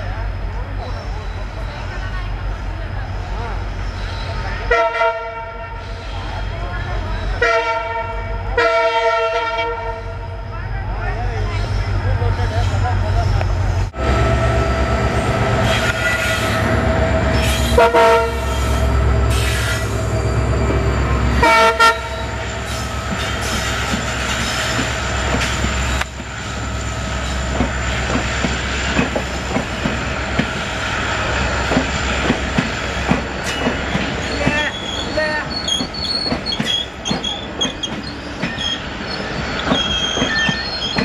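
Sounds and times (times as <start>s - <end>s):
locomotive deep rumble: 10.0s - 41.0s
high wheel squeals: 15.6s - 26.0s, 33.4s - 41.0s
train horn chord: 17.8s - 18.5s, 21.4s - 22.4s
wheels clacking over rail joints: 27.2s - 30.7s, 31.6s - 41.0s.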